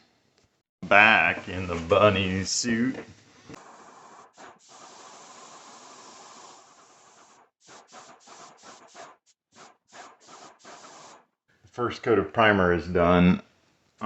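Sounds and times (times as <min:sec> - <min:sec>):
primer spray hissing: 0:03.6 - 0:11.2.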